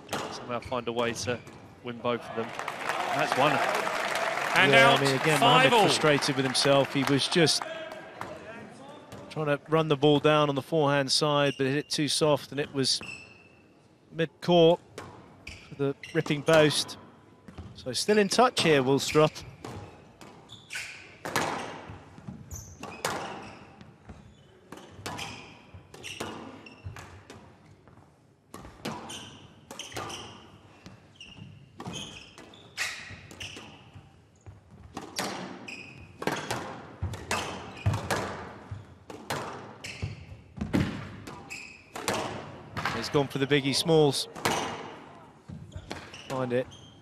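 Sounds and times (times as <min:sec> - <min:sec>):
shoe squeaks: 0:11.4 - 0:12.1, 0:13.0 - 0:13.7, 0:15.4 - 0:16.4, 0:19.1 - 0:21.8, 0:22.4 - 0:27.0, 0:28.9 - 0:34.5, 0:35.6 - 0:36.5, 0:37.3 - 0:38.1, 0:39.8 - 0:40.5, 0:41.4 - 0:42.1, 0:45.7 - 0:47.0
squash ball hits echoing: 0:36.2 - 0:39.7, 0:40.6 - 0:43.2, 0:44.3 - 0:45.0.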